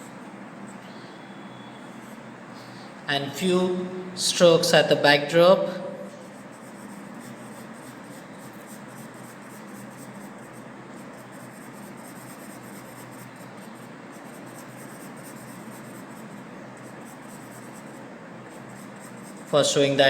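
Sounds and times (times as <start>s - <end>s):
pencil shading on paper: 6.2s - 19.7s.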